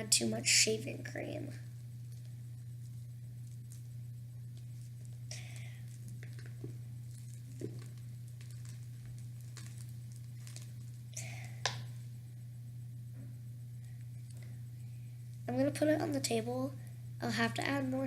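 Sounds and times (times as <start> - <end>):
low electrical hum: 0.0 - 18.0
slime squishing under stirring stick: 1.8 - 12.1.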